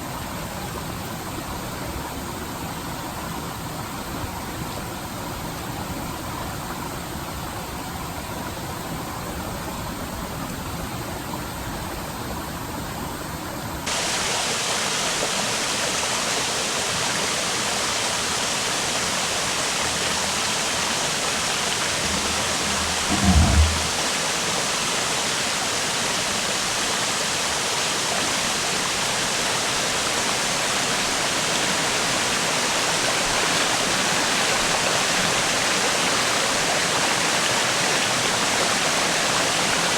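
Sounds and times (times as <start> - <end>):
low thud: 22.0 - 24.0.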